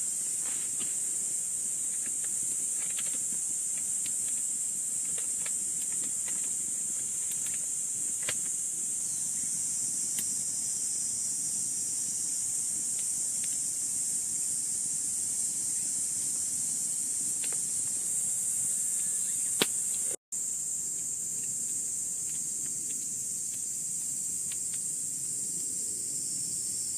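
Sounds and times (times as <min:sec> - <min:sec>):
insect chorus drone: 0:00.0 - 0:26.9.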